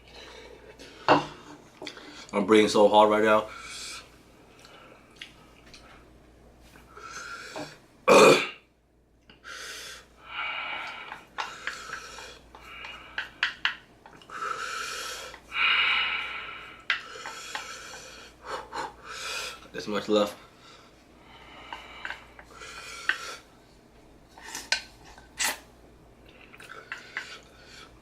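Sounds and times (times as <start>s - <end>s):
man breathing hard huffing: 14.3s - 19.6s.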